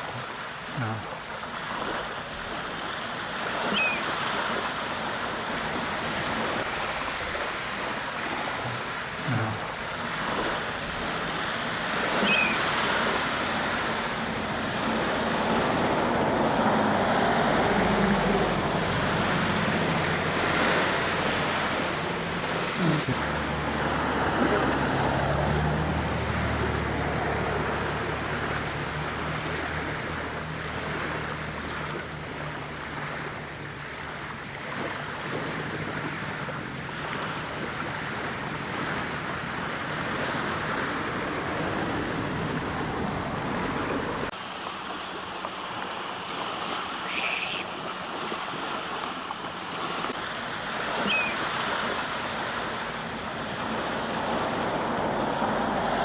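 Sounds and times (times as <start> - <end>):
surf washing onto beach: 0.0 - 56.0
wind: 0.0 - 56.0
high bird call: 3.6 - 4.2, 12.2 - 12.8, 47.0 - 47.7, 51.0 - 51.5.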